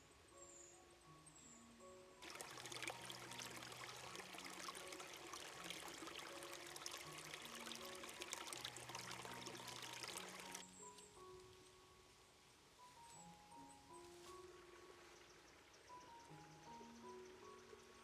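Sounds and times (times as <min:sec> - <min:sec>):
soft music with held notes: 0:00.0 - 0:18.0
running water splashing: 0:02.2 - 0:10.6.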